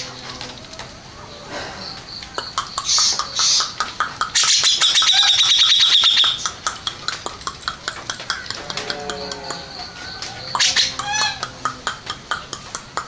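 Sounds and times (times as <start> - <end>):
bird singing rapid trill: 1.3 - 7.7, 8.3 - 12.6
sharp clicking bird notes: 1.8 - 13.0.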